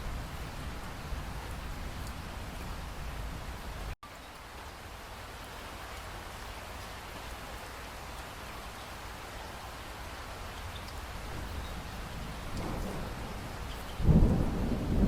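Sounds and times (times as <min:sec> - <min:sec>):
steady rainfall hiss: 0:00.0 - 0:15.0
water drops ticking: 0:12.4 - 0:12.9.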